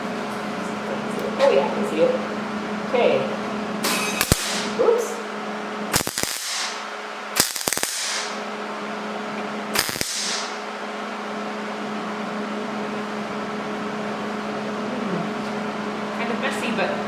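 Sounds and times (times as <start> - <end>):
steady low hum: 0.0 - 17.0
welding arc crackling: 4.2 - 4.8, 5.9 - 8.5, 9.8 - 10.7.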